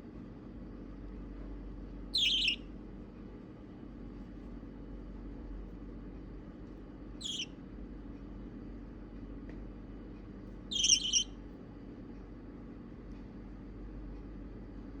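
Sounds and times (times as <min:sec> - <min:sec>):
budgie chick chirping: 0:02.1 - 0:02.6, 0:07.2 - 0:07.5, 0:10.7 - 0:11.3.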